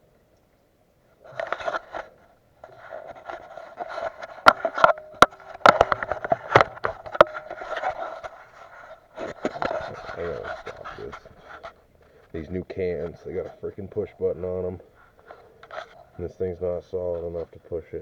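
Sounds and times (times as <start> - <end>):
plastic fuel can clicks and knocks: 4.4 - 8.0.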